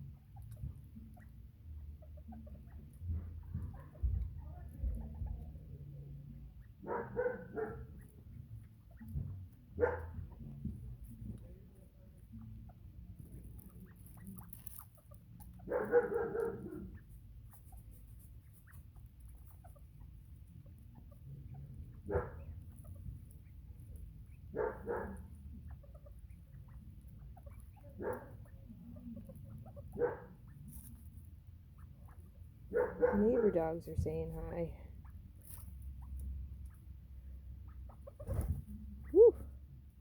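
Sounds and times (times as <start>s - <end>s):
dogs barking: 6.8s - 8.2s, 9.1s - 10.5s, 15.4s - 17.2s, 21.9s - 22.8s, 24.2s - 25.6s, 27.4s - 28.7s, 29.3s - 30.9s, 32.1s - 33.7s.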